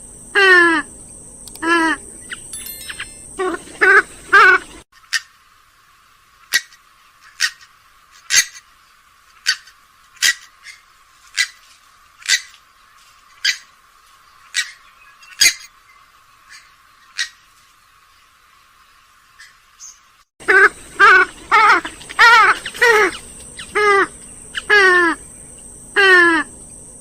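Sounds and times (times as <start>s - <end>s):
swamphen calling: 1.6s - 5.4s, 9.4s - 12.6s, 13.3s - 26.8s.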